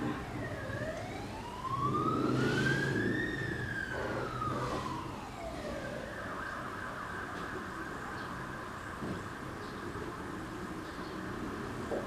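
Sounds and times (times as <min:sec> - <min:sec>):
emergency siren wailing: 0:00.0 - 0:09.6
road traffic rumble: 0:00.0 - 0:12.0.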